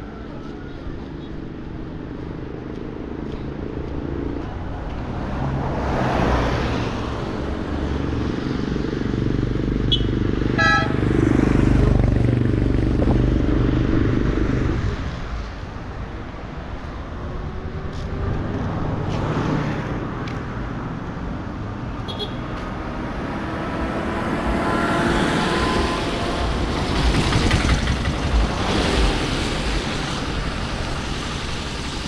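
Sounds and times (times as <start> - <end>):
vehicle engines rumbling past: 0.0 - 32.0
vehicle horn toot: 9.9 - 11.0, 22.1 - 22.4.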